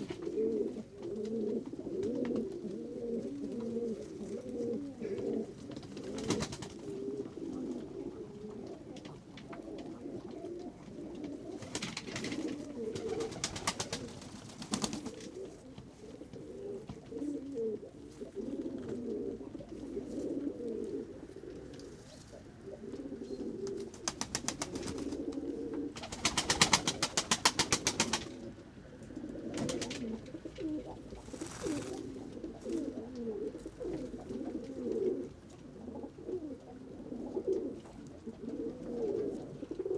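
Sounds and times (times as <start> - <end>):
pigeons cooing: 0.0 - 39.9
pigeon wings flapping: 5.8 - 6.9, 11.6 - 15.4, 23.8 - 25.4, 26.0 - 28.4, 29.5 - 30.2, 31.2 - 32.2.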